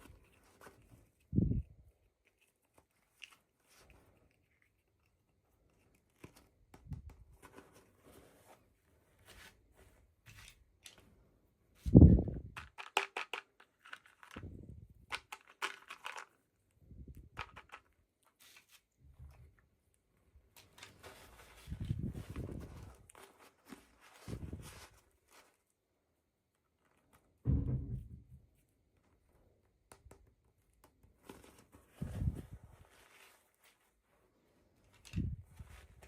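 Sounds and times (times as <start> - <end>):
heavy thump: 27.4 - 28.3.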